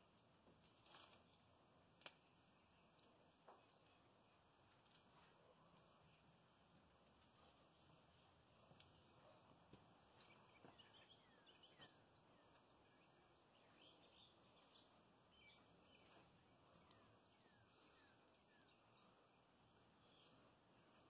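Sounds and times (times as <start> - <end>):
faint bird chirps: 7.3 - 21.0.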